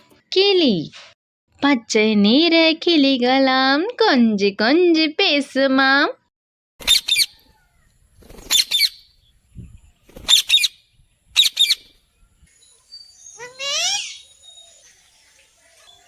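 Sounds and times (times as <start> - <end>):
parrot squawking: 6.8 - 7.6, 11.4 - 11.9, 13.4 - 14.3.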